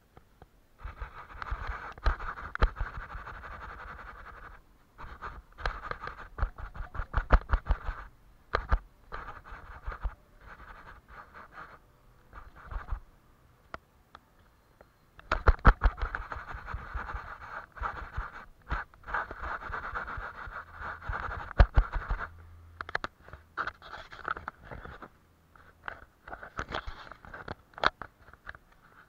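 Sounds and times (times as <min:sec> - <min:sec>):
paintbrush rubbing on paper: 0:00.8 - 0:13.0, 0:15.4 - 0:22.4, 0:23.6 - 0:25.0.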